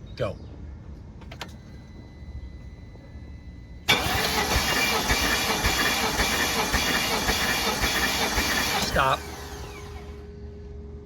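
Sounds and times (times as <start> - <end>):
engine running: 1.2 - 11.0
starter motor cranking engine: 3.9 - 10.2.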